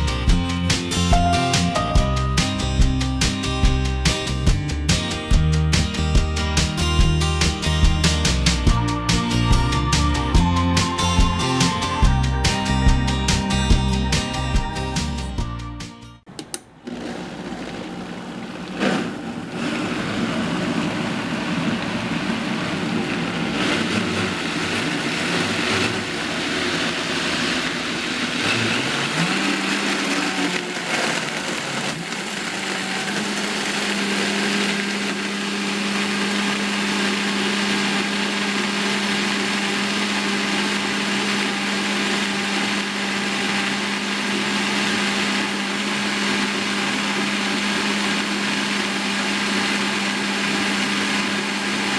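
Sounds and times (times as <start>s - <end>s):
blender crushing ice: 16.8s - 51.9s.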